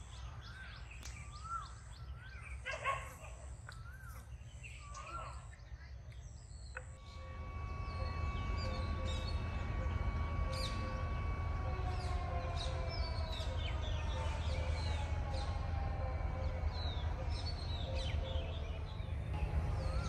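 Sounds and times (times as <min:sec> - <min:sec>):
small birds chirping: 0:00.0 - 0:20.0
faint long held tones: 0:06.2 - 0:20.0
low rumble: 0:06.9 - 0:20.0.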